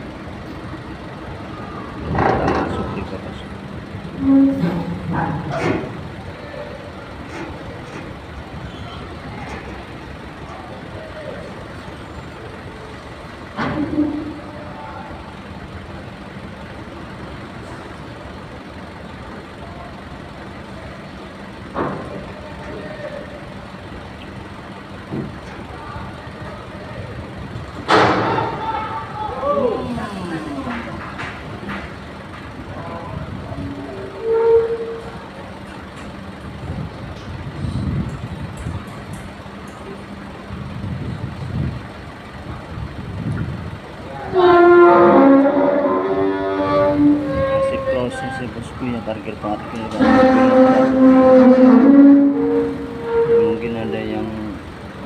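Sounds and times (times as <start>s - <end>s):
truck diesel engines humming: 0.0s - 55.0s
loud horn blast: 4.1s - 5.9s, 33.6s - 35.3s, 44.1s - 54.6s.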